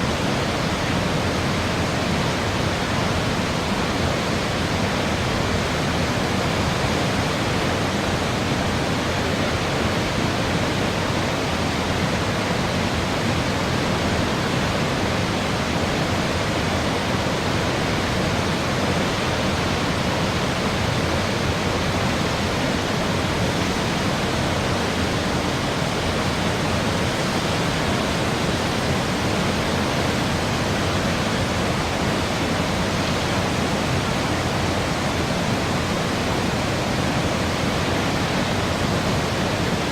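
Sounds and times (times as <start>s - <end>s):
waterfall crashing: 0.0s - 39.9s.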